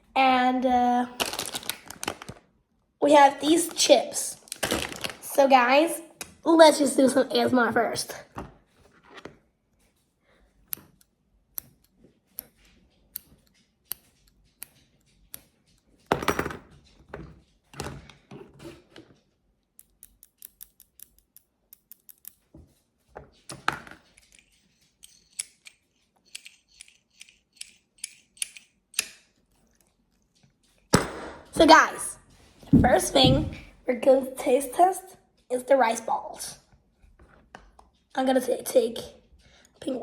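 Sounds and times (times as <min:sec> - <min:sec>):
plastic crinkling bursts: 0:01.1 - 0:02.5, 0:03.5 - 0:05.4
plastic rustling: 0:01.1 - 0:05.4.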